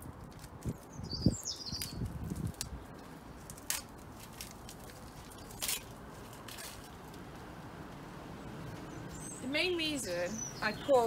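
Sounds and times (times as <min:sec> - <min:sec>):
high bird chirp: 0:00.9 - 0:02.0, 0:08.7 - 0:11.0.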